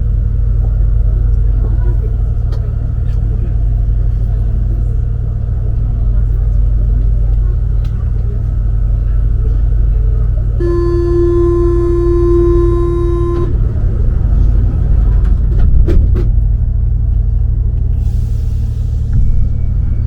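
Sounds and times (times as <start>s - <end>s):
metro train rumbling: 0.0s - 20.0s
buzzing warning tone: 10.6s - 13.7s.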